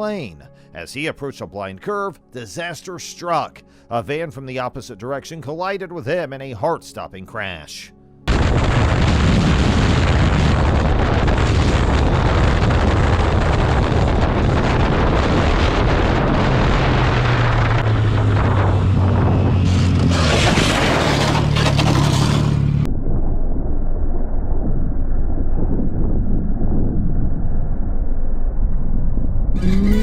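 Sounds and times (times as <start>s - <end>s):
wind rush over microphone: 8.3s - 21.3s, 22.8s - 30.0s
motorcycle engine drone: 8.3s - 30.0s.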